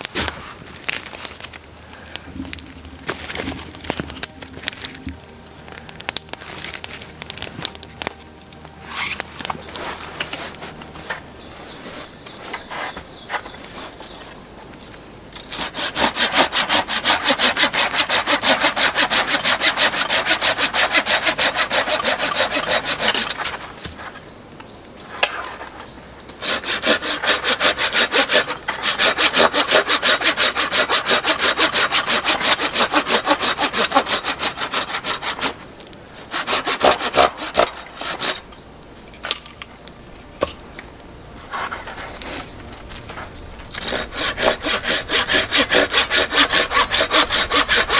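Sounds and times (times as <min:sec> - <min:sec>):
hand saw cutting wood: 0:05.8 - 0:14.2, 0:15.4 - 0:24.2, 0:25.2 - 0:38.6, 0:41.4 - 0:47.9.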